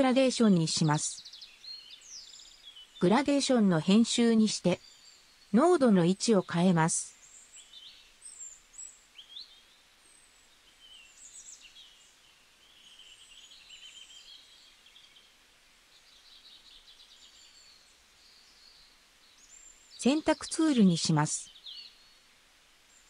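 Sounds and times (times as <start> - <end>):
faint bird chirps and trills: 0.0 - 23.0
light hiss: 1.2 - 3.0, 4.8 - 5.6, 7.1 - 20.1.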